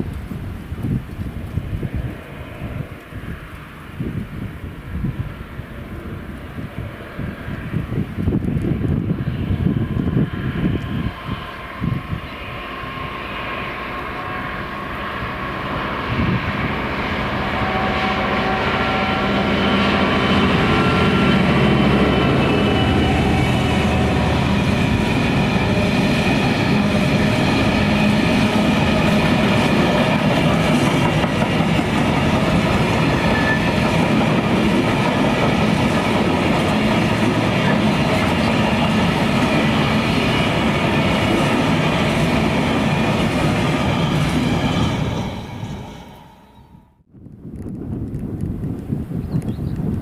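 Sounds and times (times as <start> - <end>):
freight train wheels clattering: 19.6 - 45.6.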